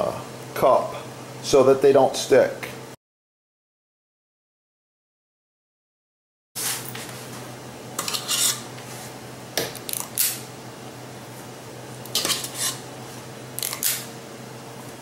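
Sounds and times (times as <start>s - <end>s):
metal scoop scraping muffin pan: 8.0s - 8.7s, 12.1s - 12.9s.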